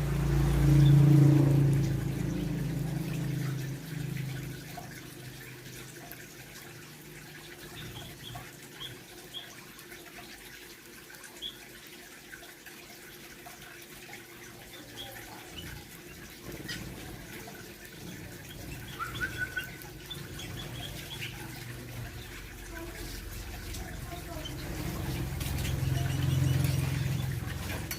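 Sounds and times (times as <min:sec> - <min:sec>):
small birds chirping: 0:07.6 - 0:09.6, 0:11.3 - 0:11.7, 0:14.6 - 0:27.9.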